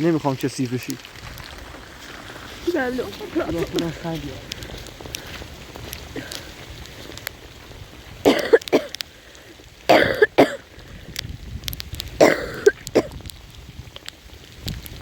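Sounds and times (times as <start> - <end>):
person coughing: 8.3 - 8.9, 9.9 - 10.6, 12.2 - 13.1.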